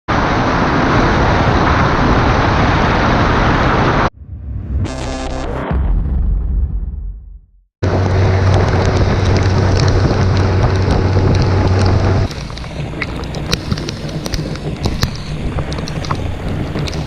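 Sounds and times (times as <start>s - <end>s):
wind rushing over microphone: 0.1s - 4.8s, 7.8s - 17.0s
boat motor running: 7.8s - 17.0s.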